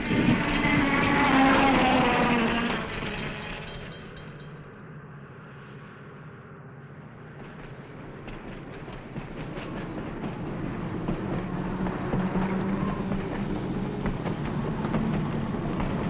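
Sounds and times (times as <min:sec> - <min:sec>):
wheels clicking over rail joints: 0:00.0 - 0:04.7, 0:08.1 - 0:16.0
train rumble: 0:00.0 - 0:05.0, 0:06.9 - 0:16.0.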